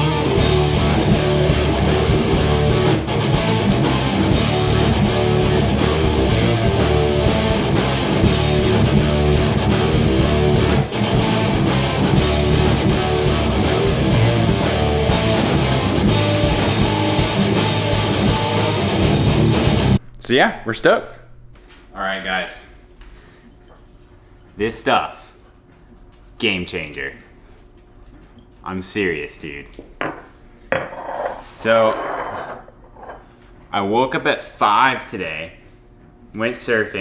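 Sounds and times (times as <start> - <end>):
metal band with electric guitars: 0.0 - 20.0.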